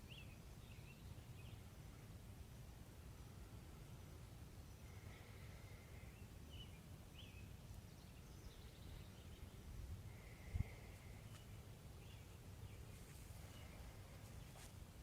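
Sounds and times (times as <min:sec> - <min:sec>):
low wind-like rumble: 0:00.0 - 0:15.0
faint bird calls: 0:03.4 - 0:15.0.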